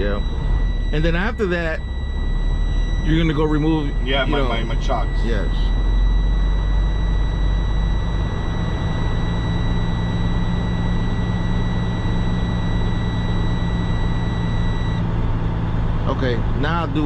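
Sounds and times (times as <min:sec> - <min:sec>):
diesel engine idling: 0:00.0 - 0:11.5
warning buzzer tone: 0:00.0 - 0:17.0.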